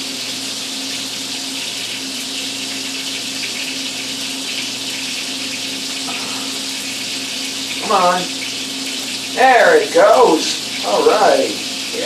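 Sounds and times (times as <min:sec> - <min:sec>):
onion rings sizzling in fat: 0:00.0 - 0:12.0.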